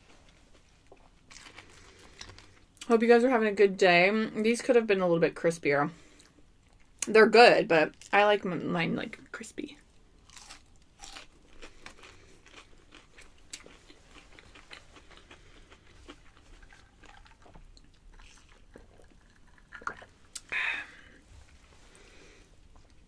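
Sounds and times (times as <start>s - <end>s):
chewing and crunching: 0.3s - 2.9s, 10.2s - 20.5s
breathy sound: 20.4s - 22.6s.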